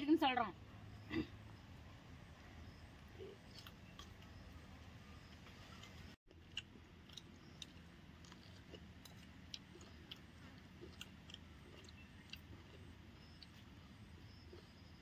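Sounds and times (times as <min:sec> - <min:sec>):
chewing with mouth clicks: 0:03.1 - 0:04.4, 0:05.2 - 0:15.0.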